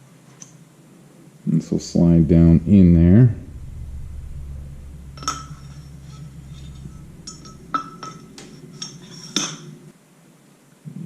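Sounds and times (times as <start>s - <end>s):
low steady hum: 1.5s - 9.9s.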